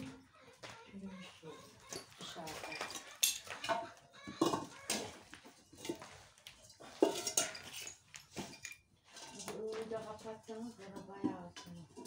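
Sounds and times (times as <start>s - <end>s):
dishes and cutlery clinking: 1.6s - 12.0s.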